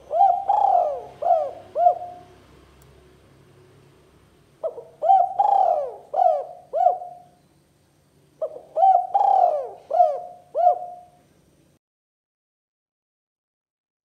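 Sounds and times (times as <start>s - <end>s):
dove cooing: 0.0s - 2.5s, 4.6s - 7.4s, 8.4s - 11.2s.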